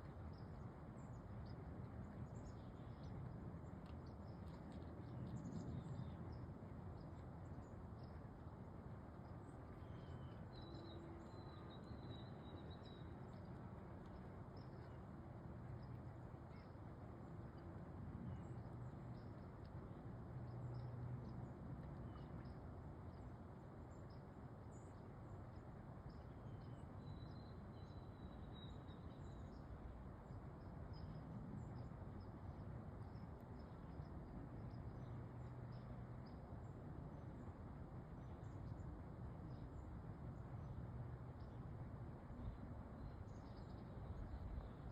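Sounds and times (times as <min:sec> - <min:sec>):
faint bird chirps: 0:09.8 - 0:13.4.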